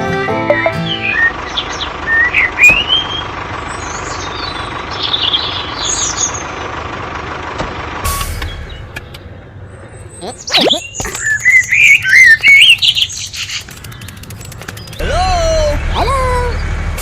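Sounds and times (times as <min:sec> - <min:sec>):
squeaky chirps: 0:09.9 - 0:15.1
mechanical running with high whine: 0:11.8 - 0:17.0.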